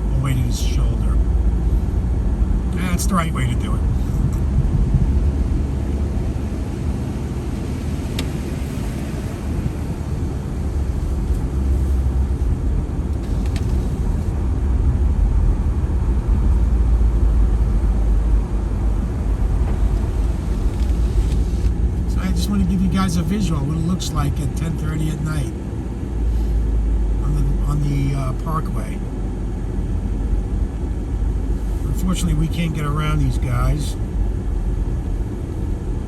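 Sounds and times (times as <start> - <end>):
car road and engine rumble: 0.0 - 36.0.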